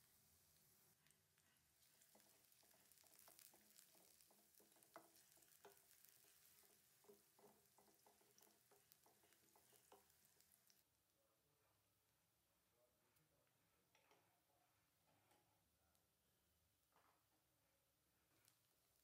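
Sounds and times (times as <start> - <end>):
onions sizzling in oil: 0.0 - 10.8
wooden spatula scraping pan: 1.5 - 10.7.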